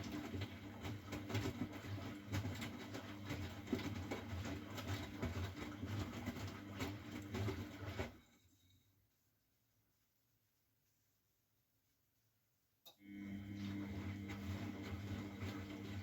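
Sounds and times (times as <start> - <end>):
washing machine motor hum: 0.0 - 8.4, 13.0 - 16.0.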